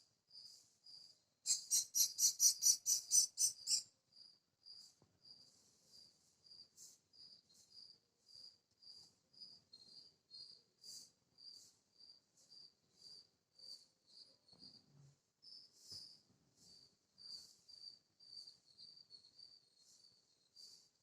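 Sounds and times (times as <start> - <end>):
small birds chirping: 0.3 - 21.0.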